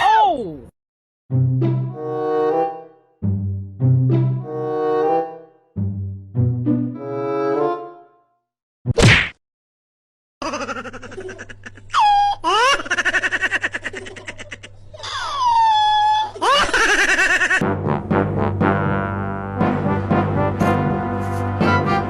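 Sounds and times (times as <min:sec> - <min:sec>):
person laughing hard: 0:10.4 - 0:17.6.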